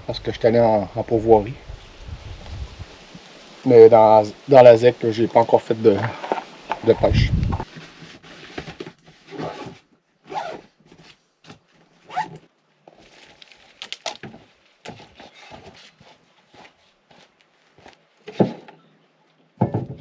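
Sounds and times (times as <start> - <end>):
rustling and scraping: 5.1 - 18.8.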